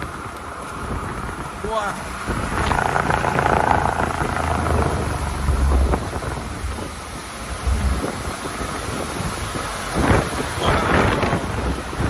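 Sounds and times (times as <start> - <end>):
wind and rain hiss: 0.0 - 12.0
deep thunder rumbling: 2.2 - 10.3.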